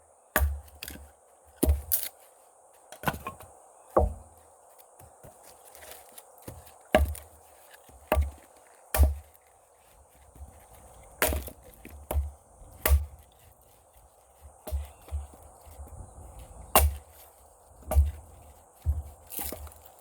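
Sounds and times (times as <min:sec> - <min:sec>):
axe chopping wood: 0:00.3 - 0:02.1, 0:03.0 - 0:04.3, 0:05.8 - 0:09.4, 0:11.0 - 0:13.8, 0:14.4 - 0:19.9.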